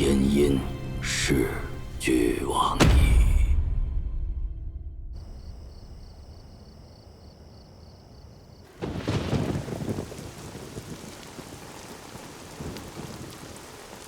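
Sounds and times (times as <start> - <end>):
rain falling: 8.6 - 14.0
thunderclap rumbling: 8.6 - 14.0.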